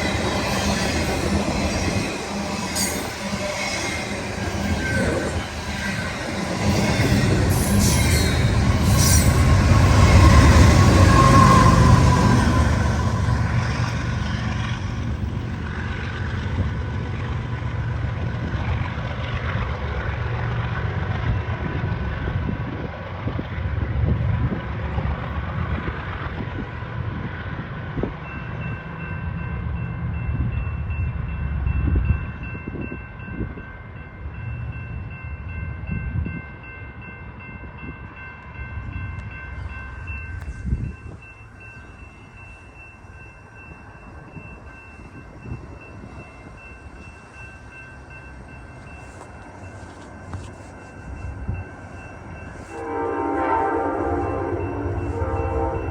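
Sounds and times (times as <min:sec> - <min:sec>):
train wheels rumbling on rails: 0:00.0 - 0:55.9
high ringing tone: 0:39.4 - 0:55.9.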